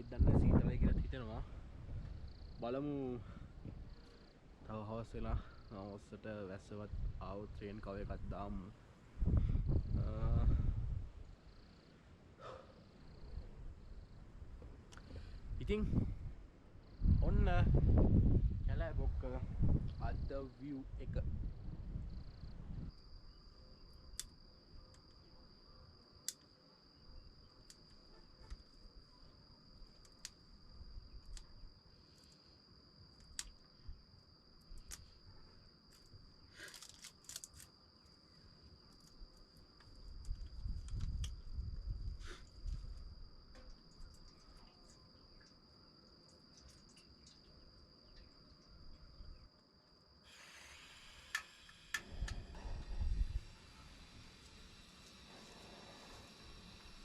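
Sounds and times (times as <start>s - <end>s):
wind rumbling on microphone: 0.0s - 4.0s, 4.9s - 5.6s, 6.7s - 11.4s, 13.2s - 23.1s, 40.0s - 43.4s, 52.0s - 54.0s
insect trilling: 50.2s - 57.0s
steady hiss: 50.2s - 57.0s.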